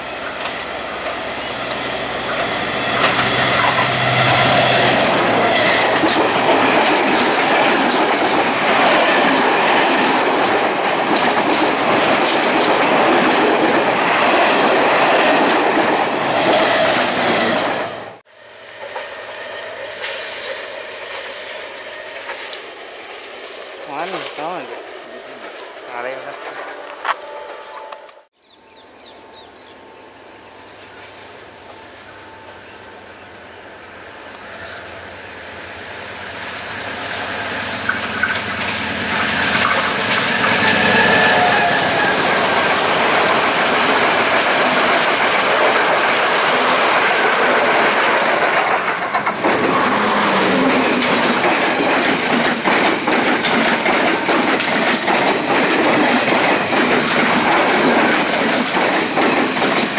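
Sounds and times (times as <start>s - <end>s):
wheels clacking over rail joints: 0.0s - 18.0s, 36.7s - 59.9s
train passing at speed: 0.0s - 59.9s.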